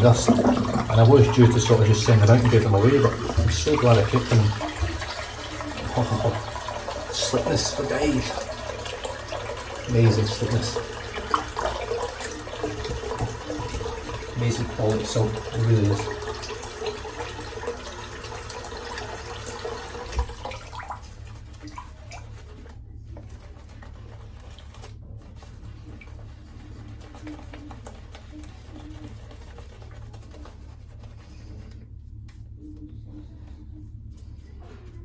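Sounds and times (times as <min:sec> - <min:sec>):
tap water running into sink: 0:00.0 - 0:22.5.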